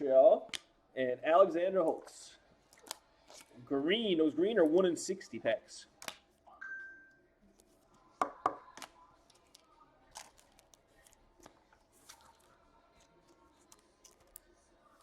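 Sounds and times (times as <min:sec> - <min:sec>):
trading cards and wrappers handled: 0:02.6 - 0:03.6, 0:07.5 - 0:15.0.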